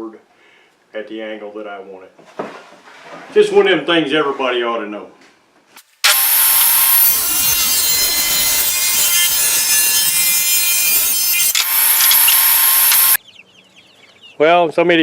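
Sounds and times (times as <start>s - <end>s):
saw blade cutting wood: 6.0s - 13.2s
table saw whining: 6.0s - 13.2s.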